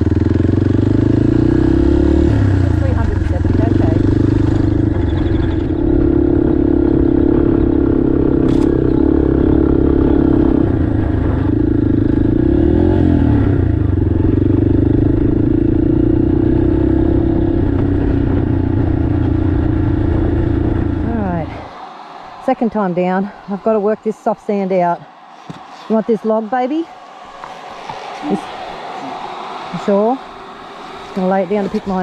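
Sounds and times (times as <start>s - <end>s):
motorcycle engine running: 0.0s - 21.6s.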